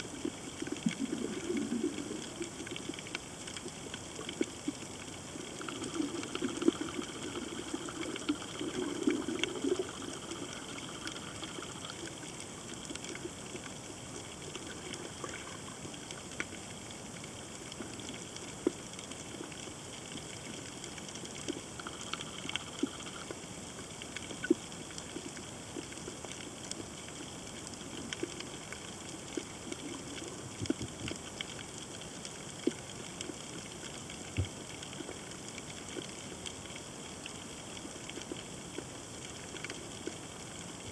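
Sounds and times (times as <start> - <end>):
sharp clicks and crackles: 0.1 - 40.9
gurgling burble: 0.6 - 2.8, 5.6 - 11.9.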